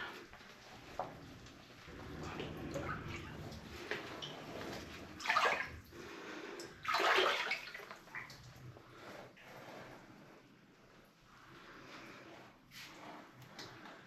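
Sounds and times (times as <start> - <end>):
feet splashing through water: 1.9 - 5.9, 6.8 - 8.5.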